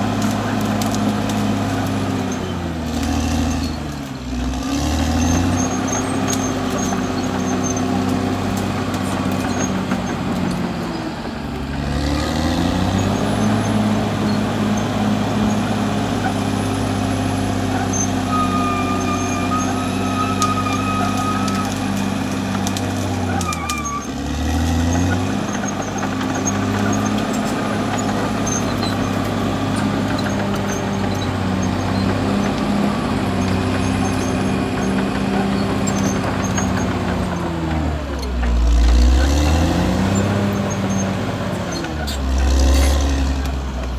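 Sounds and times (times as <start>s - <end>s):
bulldozer diesel engine running: 0.0s - 43.9s
thin high whine: 17.9s - 22.4s.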